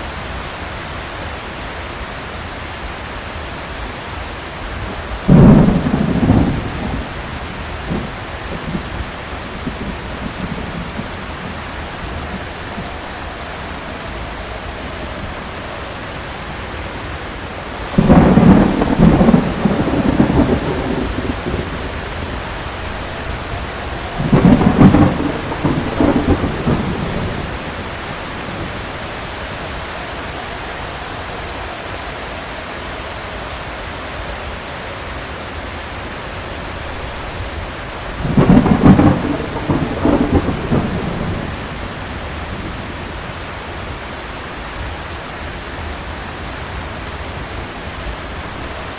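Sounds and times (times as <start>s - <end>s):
heavy rain: 0.0s - 48.9s
thunder claps rumbling: 4.7s - 31.5s, 36.9s - 45.5s.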